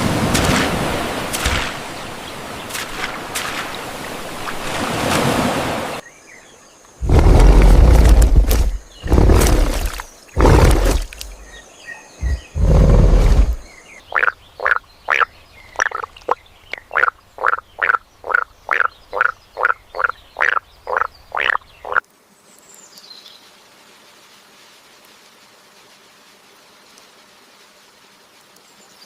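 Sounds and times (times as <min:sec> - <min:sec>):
deep rumbling bursts: 0:07.0 - 0:11.5, 0:12.2 - 0:13.6
frog croaking: 0:14.1 - 0:22.0.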